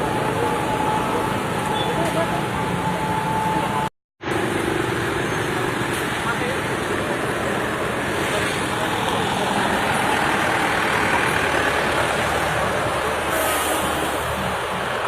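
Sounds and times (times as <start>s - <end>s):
voices: 0.0s - 3.9s
road vehicle noise: 0.0s - 15.0s.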